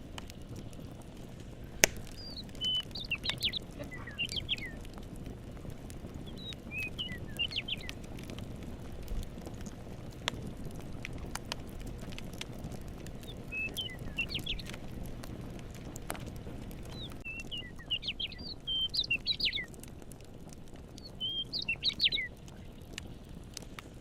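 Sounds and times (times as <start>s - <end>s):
campfire crackling and popping: 0.0s - 24.0s
songbird chirping: 2.0s - 4.9s, 6.2s - 8.0s, 13.2s - 14.8s, 16.9s - 19.7s, 21.0s - 22.7s.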